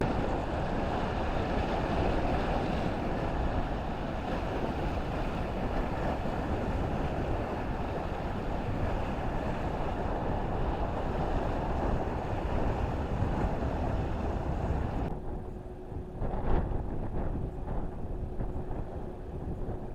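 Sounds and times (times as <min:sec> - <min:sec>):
sea waves washing: 0:00.0 - 0:15.1
wind buffeting the microphone: 0:00.0 - 0:19.9.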